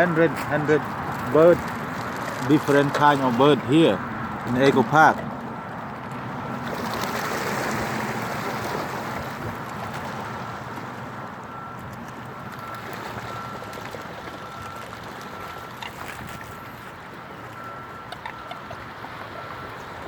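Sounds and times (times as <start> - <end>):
water rushing: 0.0 - 5.2, 6.2 - 11.2.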